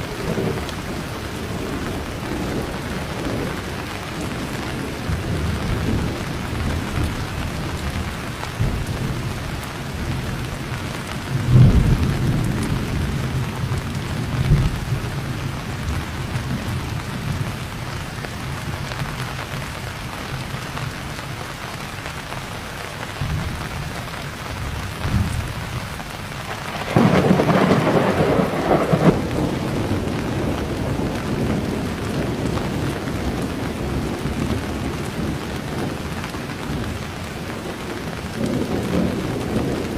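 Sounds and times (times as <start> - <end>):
thunder rolling: 0.0 - 17.6, 24.5 - 39.9
heavy rain: 0.0 - 39.9
sharp thunderclap: 11.3 - 15.0, 26.4 - 36.0.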